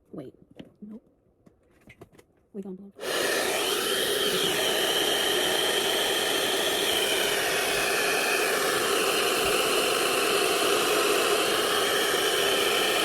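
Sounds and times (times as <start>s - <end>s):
hair dryer blowing: 3.0s - 13.0s.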